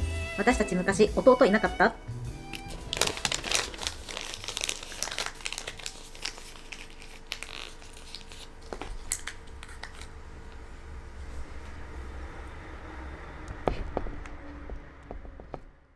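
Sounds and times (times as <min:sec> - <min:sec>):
crinkling handling noises: 0:02.5 - 0:10.9.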